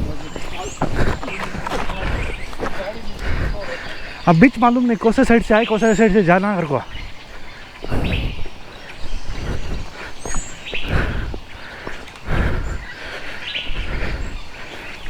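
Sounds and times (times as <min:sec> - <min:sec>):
rustling and thumps: 0:00.0 - 0:03.6
bird chirping: 0:00.0 - 0:15.0.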